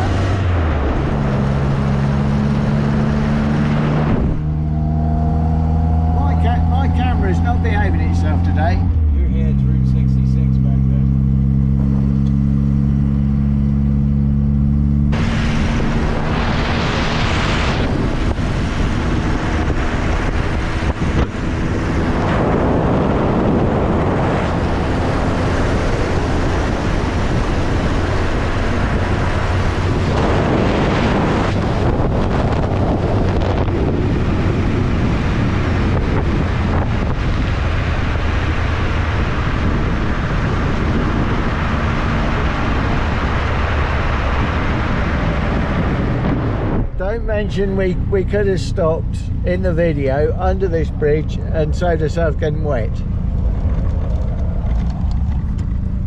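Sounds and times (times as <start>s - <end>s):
wind buffeting microphone: 0.0s - 8.2s, 15.1s - 51.8s
car engine droning: 0.0s - 56.0s
road noise: 0.0s - 56.0s.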